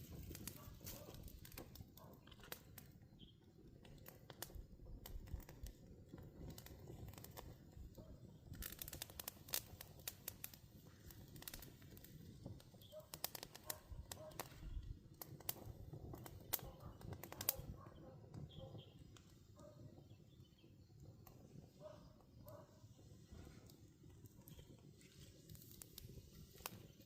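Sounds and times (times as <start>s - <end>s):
sharp clicks and snaps: 12.8s - 17.9s.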